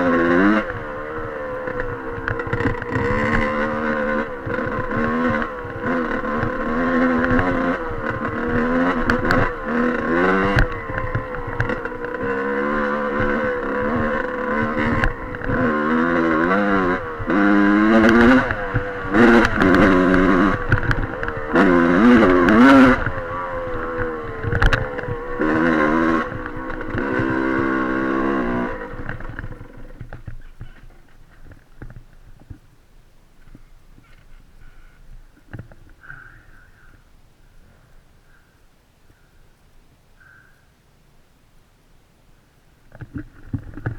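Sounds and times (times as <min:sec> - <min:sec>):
dirt bike engine revving: 0:00.0 - 0:32.4.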